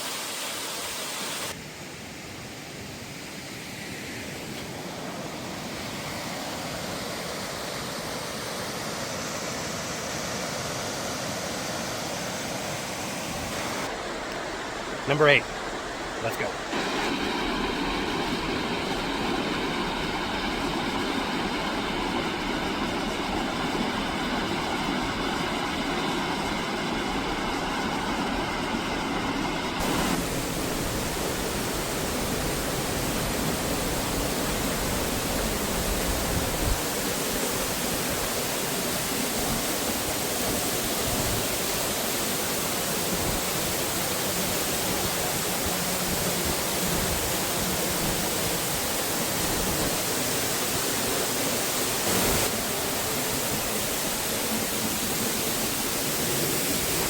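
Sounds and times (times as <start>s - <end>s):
waterfall rushing: 4.9s - 57.0s.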